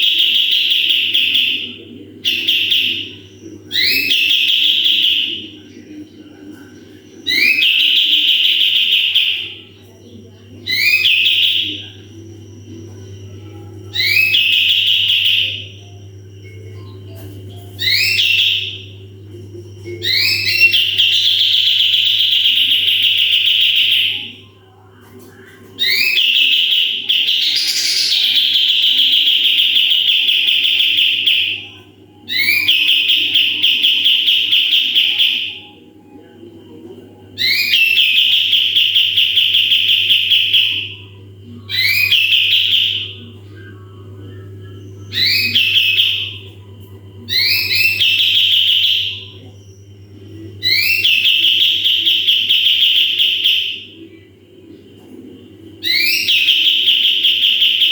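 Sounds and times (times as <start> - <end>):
bulbul singing trills: 6.6 - 24.5, 25.7 - 35.8, 37.4 - 54.2, 55.8 - 57.9
steady low hum: 9.3 - 57.4.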